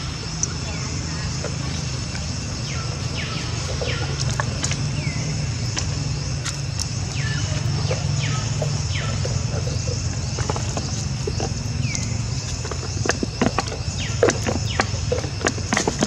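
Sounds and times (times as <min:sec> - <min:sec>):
steady low hum: 0:00.0 - 0:16.0
whistled bird calls: 0:07.1 - 0:11.1.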